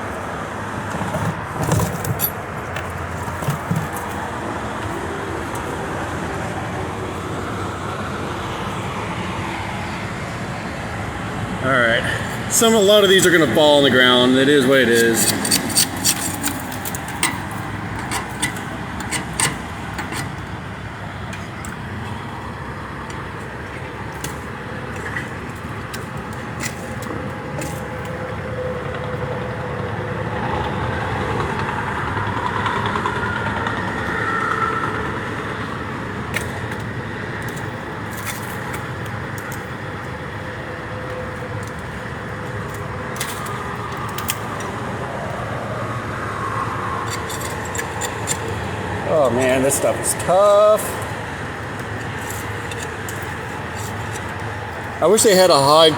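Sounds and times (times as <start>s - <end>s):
highway traffic noise: 0.0s - 55.9s
sharp clicks and scrapes: 0.8s - 4.3s, 14.6s - 20.5s, 24.1s - 28.2s, 36.3s - 39.7s, 42.6s - 44.8s, 47.0s - 55.0s.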